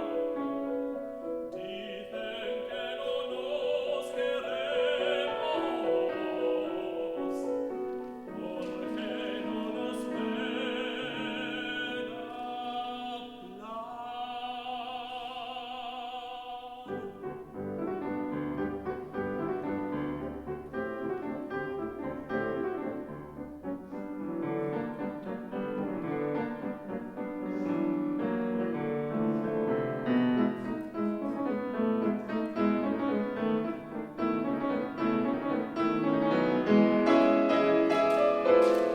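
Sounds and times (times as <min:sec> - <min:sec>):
piano accompaniment: 0:00.0 - 0:15.7, 0:16.7 - 0:38.9
operatic tenor singing: 0:00.0 - 0:18.3.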